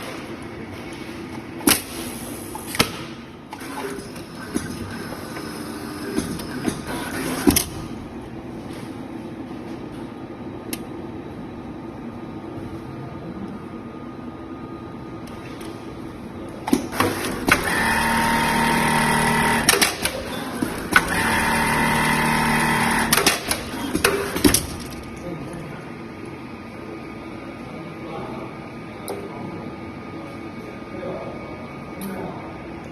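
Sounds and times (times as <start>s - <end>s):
sewing machine stitching: 16.9s - 25.0s
sewing machine humming: 16.9s - 25.1s
mechanism clicks and knocks: 19.4s - 21.2s, 22.8s - 25.2s.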